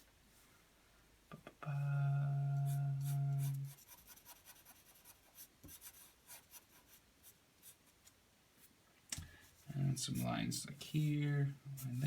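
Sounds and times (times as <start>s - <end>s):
pencil scratching on paper: 2.7s - 7.9s.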